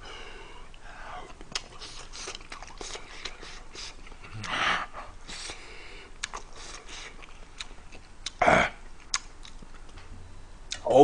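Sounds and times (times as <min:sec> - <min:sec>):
chewing and wet smacks: 0:01.3 - 0:04.6, 0:06.2 - 0:10.0, 0:10.7 - 0:10.9.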